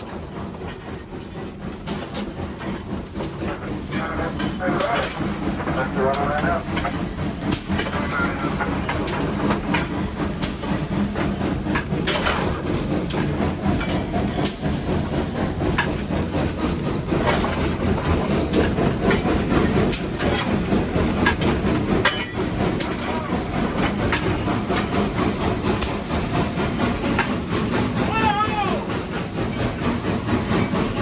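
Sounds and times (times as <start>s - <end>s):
steam hissing: 0.0s - 31.0s
steam locomotive rumble: 0.0s - 31.0s.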